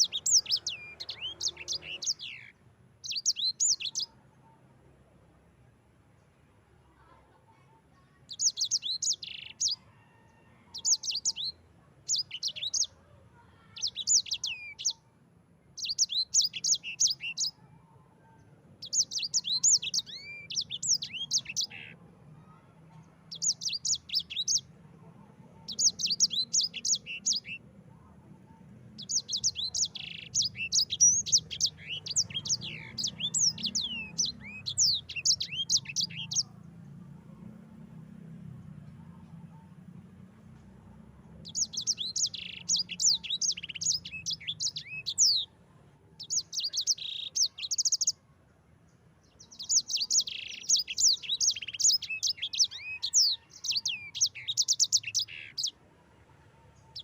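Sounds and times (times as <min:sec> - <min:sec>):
finch singing rapid chirps: 0:00.0 - 0:04.2, 0:08.3 - 0:09.8, 0:10.7 - 0:13.0, 0:13.6 - 0:15.0, 0:15.7 - 0:17.6, 0:18.8 - 0:22.6, 0:23.2 - 0:24.8, 0:25.4 - 0:27.6, 0:28.9 - 0:36.8, 0:41.3 - 0:45.5, 0:46.2 - 0:48.2, 0:49.3 - 0:55.7.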